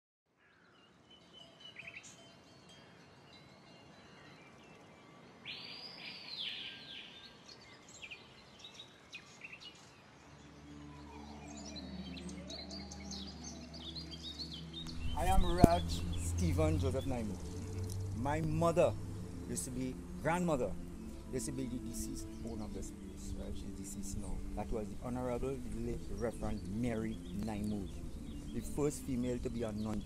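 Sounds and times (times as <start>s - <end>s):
birds calling and chirping: 0.4s - 30.0s
low steady hum: 14.8s - 30.0s.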